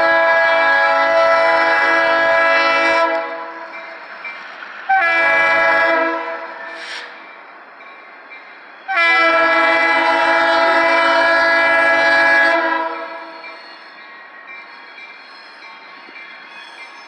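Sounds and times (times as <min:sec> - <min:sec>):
locomotive air horn blasts: 0:00.0 - 0:03.6, 0:04.9 - 0:07.2, 0:08.9 - 0:13.3.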